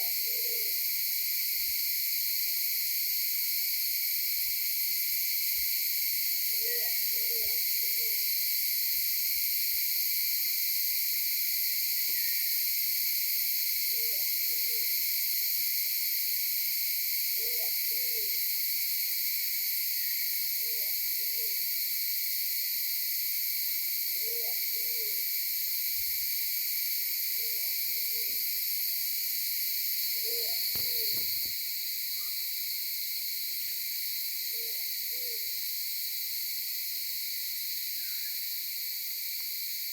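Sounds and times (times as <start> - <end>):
insects chorus: 0.0 - 39.9
bird hooting: 30.2 - 31.5.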